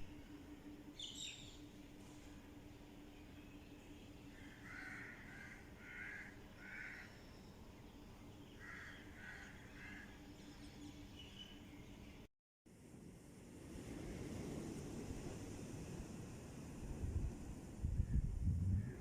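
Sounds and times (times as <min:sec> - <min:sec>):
bird harsh calls: 0:04.4 - 0:07.3.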